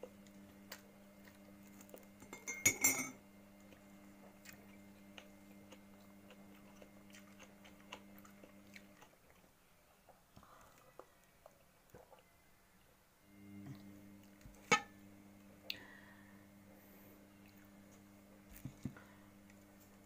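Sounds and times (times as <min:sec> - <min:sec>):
chewing bread: 0:00.0 - 0:02.2, 0:03.6 - 0:12.9
low electrical hum: 0:00.0 - 0:20.0.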